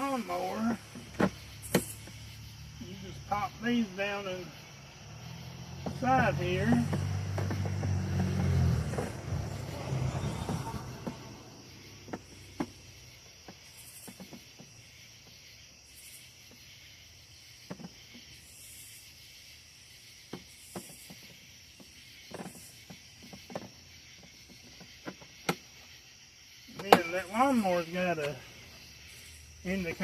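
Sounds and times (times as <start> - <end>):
faint steady hiss: 0.0 - 5.1.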